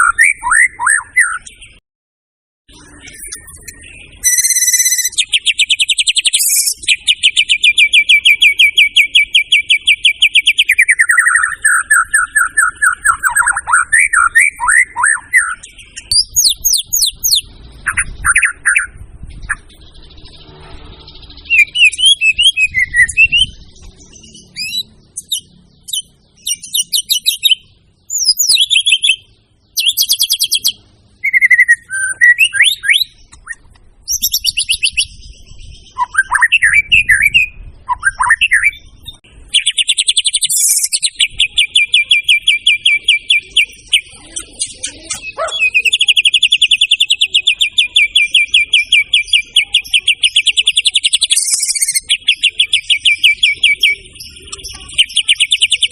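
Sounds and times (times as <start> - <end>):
songbird whistling and trilling: 0.0 - 1.8, 2.7 - 55.9.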